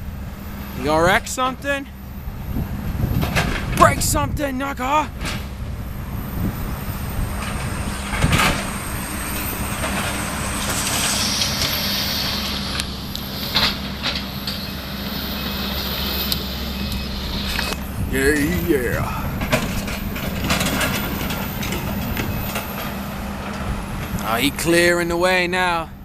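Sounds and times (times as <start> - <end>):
excavator engine running: 0.0 - 26.0
rushing hissing noise: 6.0 - 23.3.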